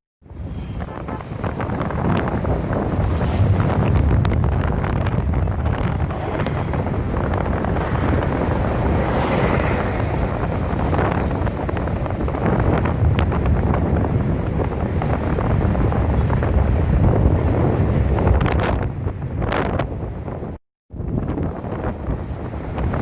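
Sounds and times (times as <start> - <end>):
wind buffeting microphone: 0.2 - 23.0.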